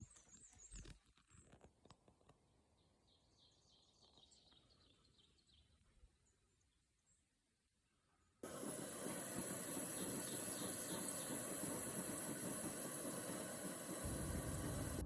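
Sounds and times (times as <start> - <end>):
bird chirps: 8.4 - 15.0.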